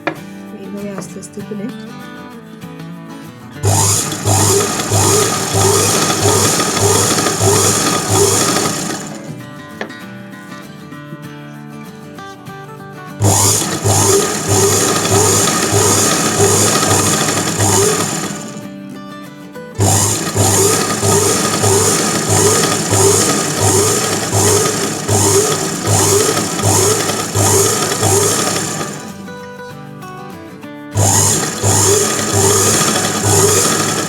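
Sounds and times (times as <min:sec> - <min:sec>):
sewing machine stitching: 0:03.6 - 0:09.4, 0:13.2 - 0:18.7, 0:19.8 - 0:29.2, 0:31.0 - 0:34.0.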